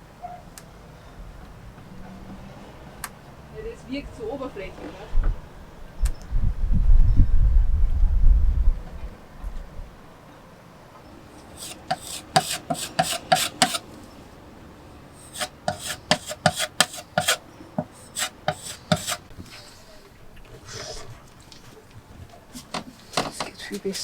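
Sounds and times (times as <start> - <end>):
hand tool scraping wood: 11.4 - 13.9, 15.2 - 19.6, 22.5 - 23.4.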